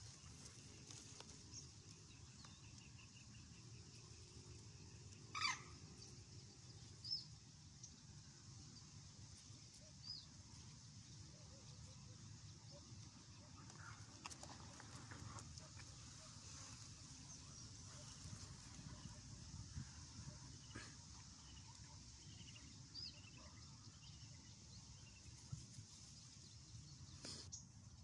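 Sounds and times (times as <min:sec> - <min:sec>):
loud bird call: 0:05.3 - 0:05.8.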